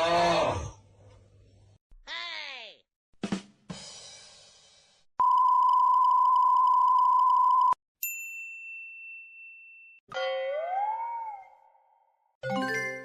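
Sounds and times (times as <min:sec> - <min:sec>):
censor beep: 0:05.2 - 0:07.8.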